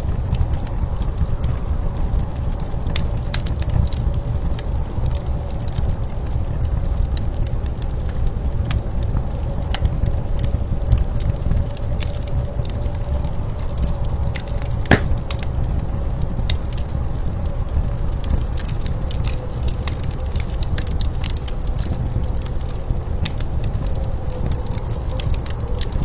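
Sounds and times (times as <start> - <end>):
wood fire crackling and popping: 14.9 - 15.4.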